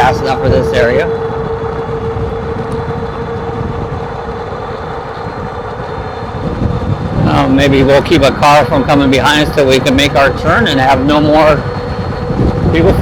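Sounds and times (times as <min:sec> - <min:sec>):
electric bike motor whining: 0:00.0 - 0:13.0
wind and tyre rumble: 0:00.0 - 0:13.0.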